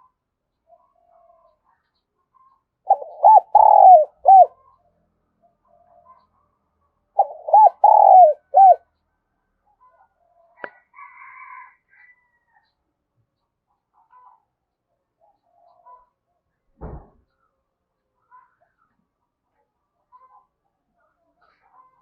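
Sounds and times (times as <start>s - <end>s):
dove cooing: 2.9s - 4.6s, 7.2s - 8.8s.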